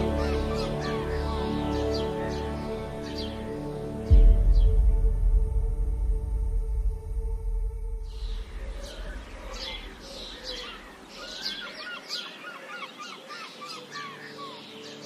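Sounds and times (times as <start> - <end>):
birds singing and chirping: 0.0 - 4.9, 8.1 - 15.0
low rumble: 4.0 - 10.6.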